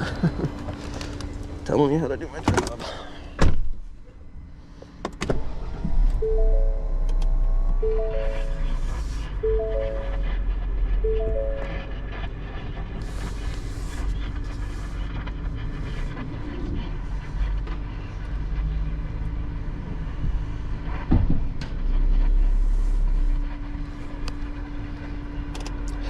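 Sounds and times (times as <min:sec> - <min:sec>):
vehicle engine running: 0:05.4 - 0:21.1.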